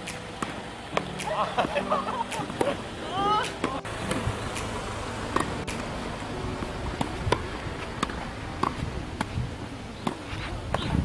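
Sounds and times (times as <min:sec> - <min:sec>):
tennis ball pops: 0:00.0 - 0:02.8, 0:03.4 - 0:06.0, 0:06.9 - 0:09.4
low background noise: 0:00.0 - 0:11.0.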